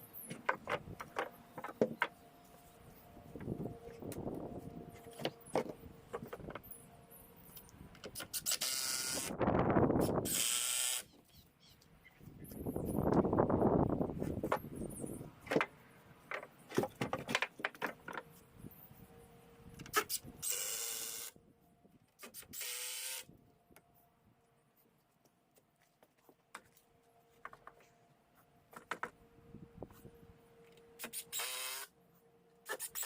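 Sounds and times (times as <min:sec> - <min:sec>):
cordless drill driving screws: 0:08.2 - 0:09.3, 0:31.0 - 0:31.9.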